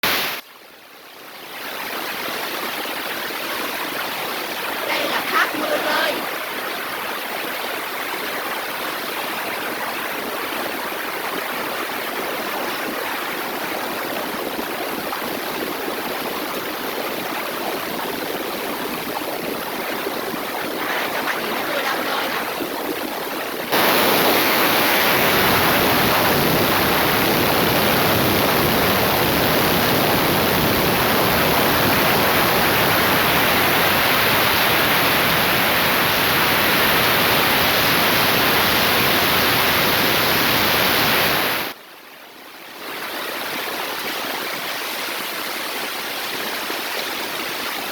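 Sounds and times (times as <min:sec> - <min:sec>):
heavy rain pouring: 0:04.3 - 0:07.0, 0:10.1 - 0:41.8.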